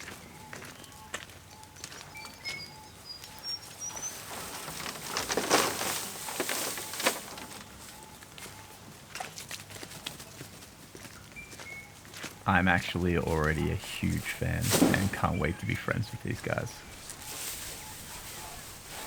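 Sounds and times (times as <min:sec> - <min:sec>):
rustling and crunching: 0:04.0 - 0:11.3, 0:12.1 - 0:19.0
birds chirping: 0:11.4 - 0:19.0.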